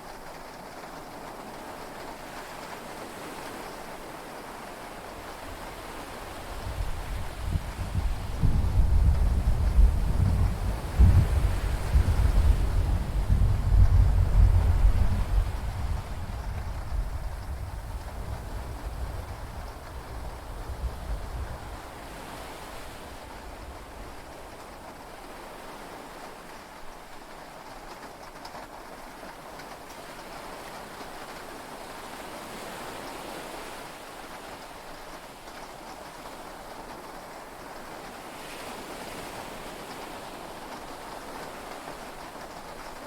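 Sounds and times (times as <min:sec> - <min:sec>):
heavy rain: 0:00.0 - 0:43.0
low rumble of thunder: 0:06.6 - 0:22.1
sea waves: 0:18.0 - 0:27.8, 0:28.8 - 0:43.0.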